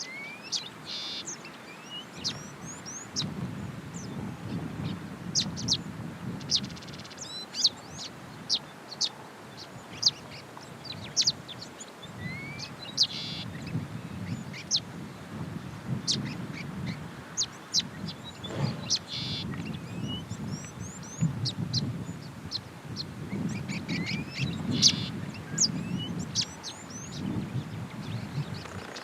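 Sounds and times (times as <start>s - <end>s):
birds chirping: 0.0s - 29.0s
bird rising whistles: 18.3s - 20.1s.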